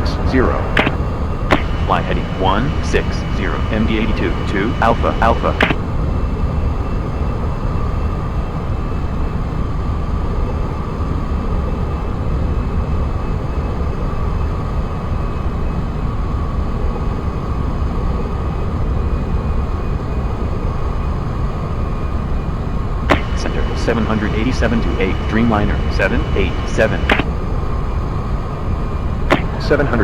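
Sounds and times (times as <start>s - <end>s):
jet engines rumbling: 0.0s - 5.8s, 23.1s - 27.3s, 29.3s - 30.0s.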